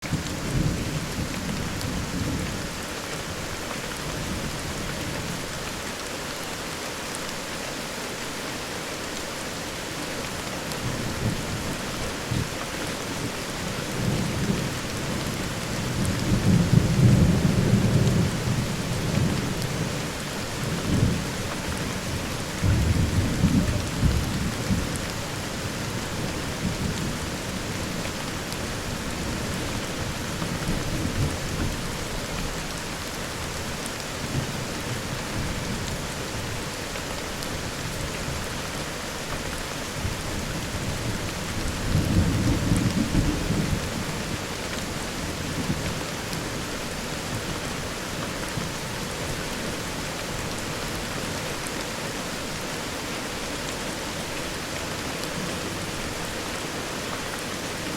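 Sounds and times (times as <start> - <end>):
rain falling: 0.0 - 57.9
thunder rumbling: 13.8 - 25.0.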